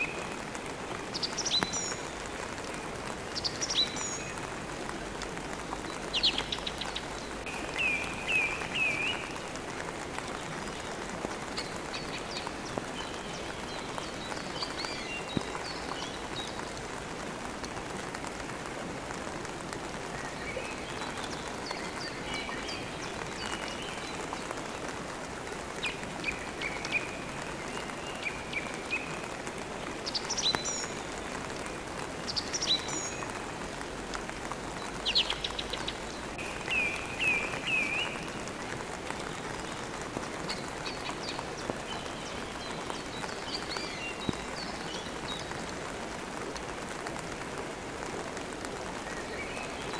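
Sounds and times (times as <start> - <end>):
songbirds chirping: 0.0 - 49.9
steady rain: 0.0 - 49.9.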